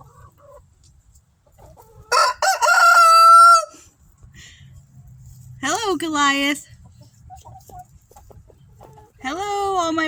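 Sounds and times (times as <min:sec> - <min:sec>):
rooster crowing: 0:02.1 - 0:03.8.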